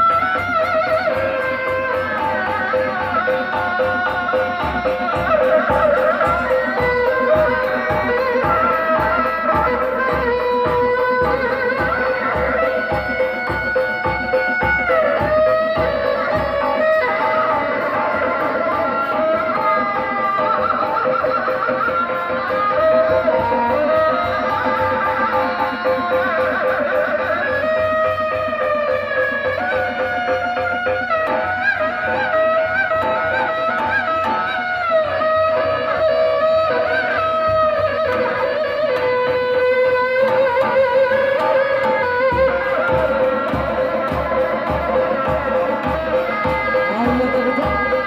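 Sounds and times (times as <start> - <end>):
hand drums beating: 0.0 - 48.0
reedy wind instrument melody: 0.0 - 48.0.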